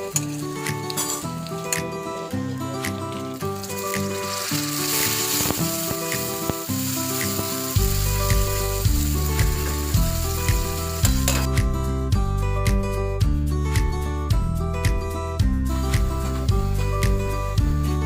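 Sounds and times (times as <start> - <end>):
food sizzling in oil: 1.0 - 11.5
background music with bass beat: 5.0 - 18.0.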